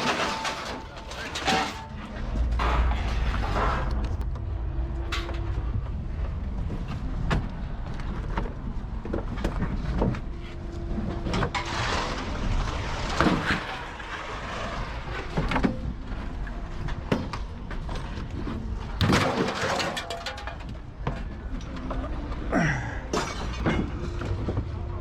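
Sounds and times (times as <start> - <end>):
scrap metal clanking: 0.0 - 4.2, 11.2 - 14.4, 19.0 - 21.3
engine rumbling: 0.0 - 25.0.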